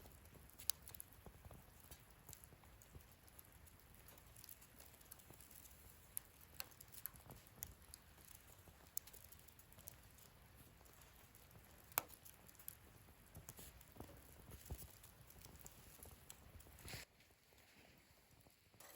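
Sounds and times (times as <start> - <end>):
fire pops: 0.0 - 18.9
wood fire crackling: 0.0 - 18.9.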